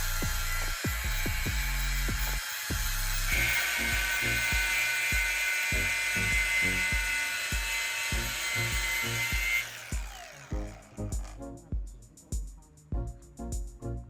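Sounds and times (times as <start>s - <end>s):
high-speed power tool whining: 0.0s - 11.4s
background music with beat: 0.0s - 14.0s.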